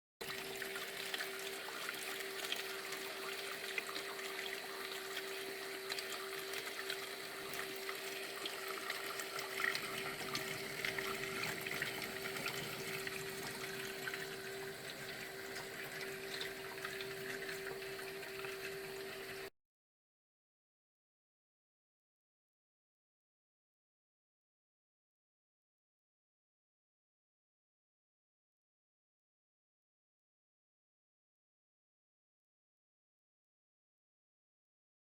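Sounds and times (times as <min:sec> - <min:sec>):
steady machine hum: 0:00.2 - 0:19.5.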